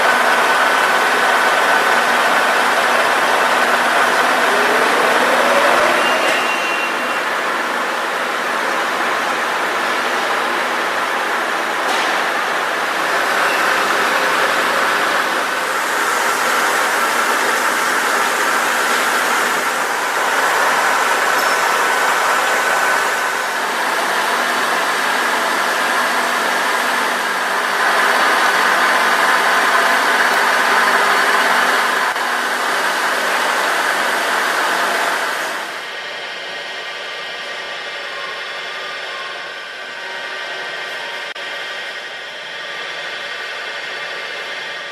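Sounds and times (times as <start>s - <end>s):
milling machine whirring: 0.0s - 44.9s.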